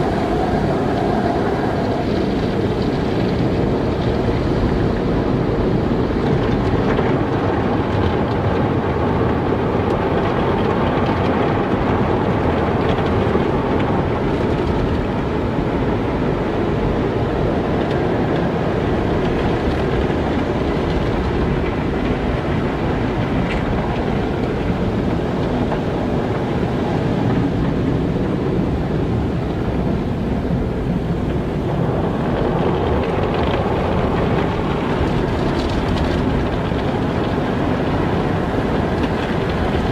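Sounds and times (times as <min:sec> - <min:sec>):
car wash machinery spraying: 0:00.0 - 0:06.2.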